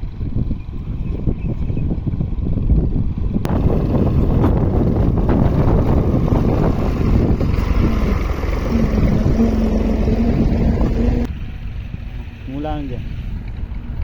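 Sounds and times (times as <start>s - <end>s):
wind buffeting microphone: 0.0s - 14.0s
tractor engine running: 2.0s - 14.0s
steady hum: 3.5s - 11.3s.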